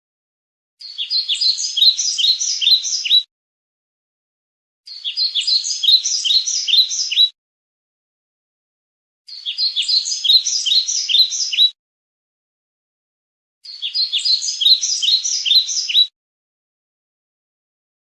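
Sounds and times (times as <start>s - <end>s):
bird chirping: 0.8s - 3.3s, 4.9s - 7.4s, 9.3s - 11.8s, 13.6s - 16.1s.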